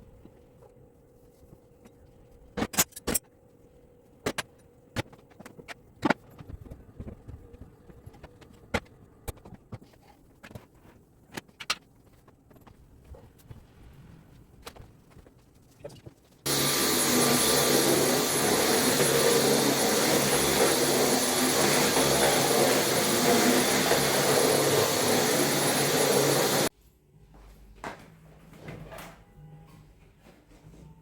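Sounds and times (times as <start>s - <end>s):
vacuum cleaner running: 16.5s - 26.7s.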